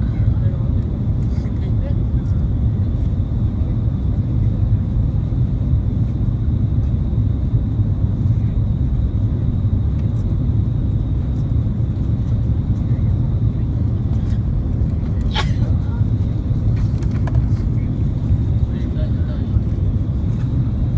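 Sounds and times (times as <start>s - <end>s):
airliner cabin rumble: 0.0s - 20.9s.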